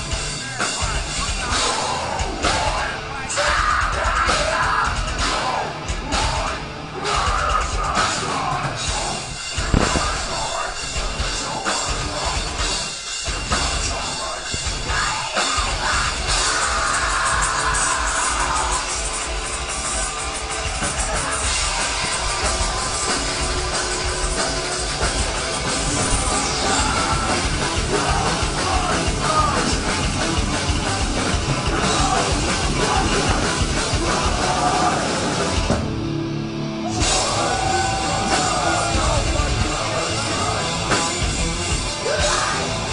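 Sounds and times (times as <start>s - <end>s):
bass guitar: 0.0s - 42.9s
distorted electric guitars: 0.0s - 42.9s
pounding drum kit: 0.0s - 42.9s
person singing: 26.0s - 35.6s, 36.9s - 41.3s.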